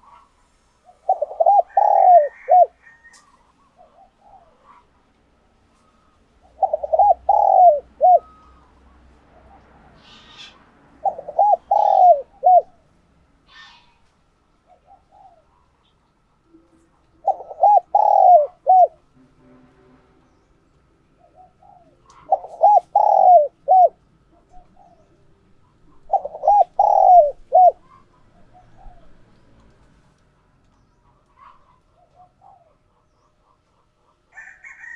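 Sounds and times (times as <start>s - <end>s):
dove cooing: 0.0s - 4.9s, 5.7s - 12.9s, 14.7s - 15.8s, 16.5s - 19.1s, 21.2s - 29.3s, 31.4s - 33.6s, 34.3s - 34.9s
faint bird chirps: 5.6s - 12.7s.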